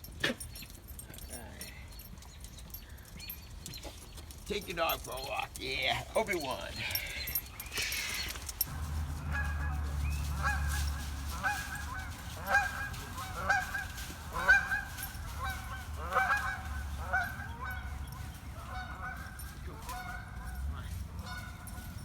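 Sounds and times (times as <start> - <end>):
geese honking: 8.6 - 22.0.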